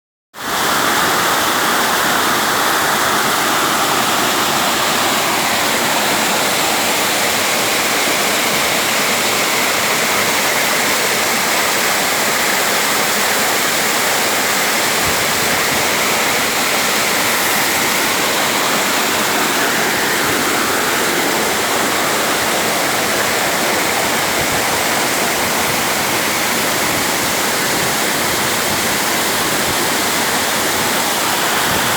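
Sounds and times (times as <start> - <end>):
waterfall roaring: 0.4 - 31.9.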